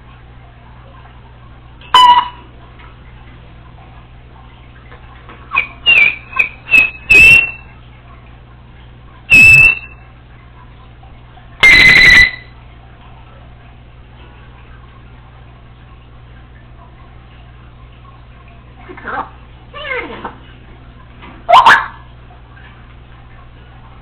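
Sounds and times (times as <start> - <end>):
parrot whistling: 1.9 - 2.4, 5.5 - 7.6, 9.3 - 10.0, 11.6 - 12.5.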